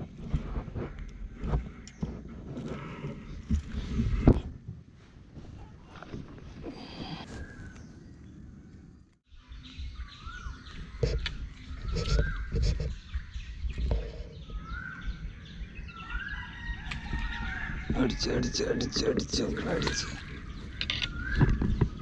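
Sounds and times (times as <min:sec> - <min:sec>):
bird calling: 0:06.6 - 0:22.0.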